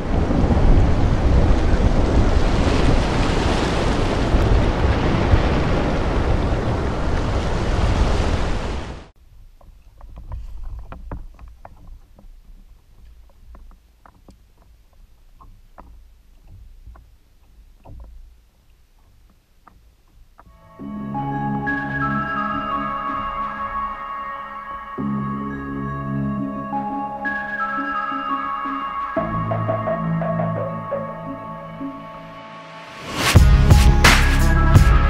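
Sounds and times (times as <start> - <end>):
rain and thunder storm: 0.0 - 9.1
water lapping against kayak: 0.0 - 20.6
wind: 0.0 - 35.0
small ticks: 9.6 - 20.6.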